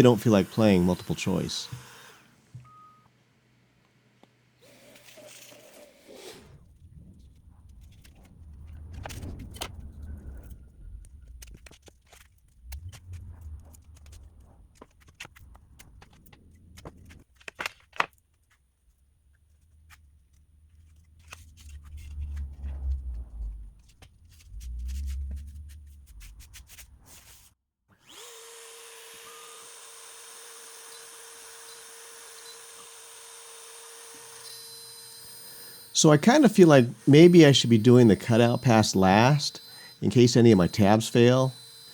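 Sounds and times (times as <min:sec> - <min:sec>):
router spindle whining: 0:00.0 - 0:02.8, 0:28.0 - 0:41.9
low rumbling handling noise: 0:06.6 - 0:17.3, 0:19.0 - 0:27.0.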